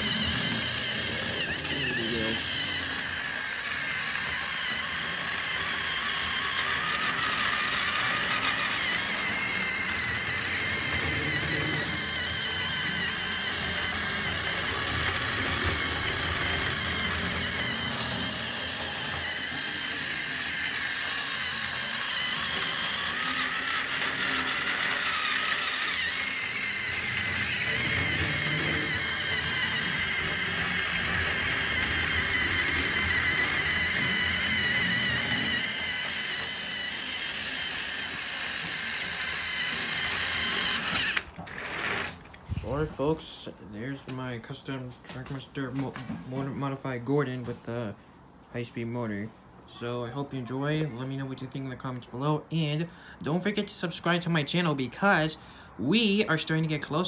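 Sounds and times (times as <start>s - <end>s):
toy train motor whine: 0.0s - 43.2s.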